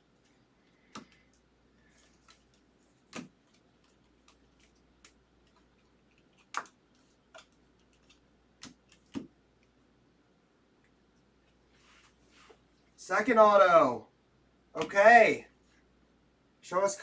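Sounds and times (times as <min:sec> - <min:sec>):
trading cards clicking and tapping: 0:00.8 - 0:01.4.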